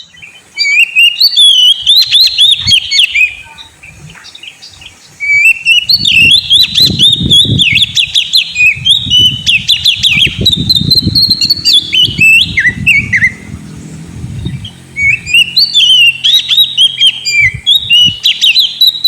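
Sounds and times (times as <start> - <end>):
bird singing whistled phrases: 0.0 - 13.5, 14.5 - 19.0.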